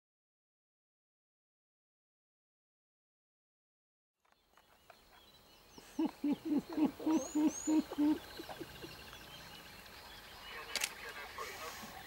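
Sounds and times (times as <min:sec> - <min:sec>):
faint high bird chirps: 0:04.3 - 0:10.7
bird low hoots: 0:05.8 - 0:09.4.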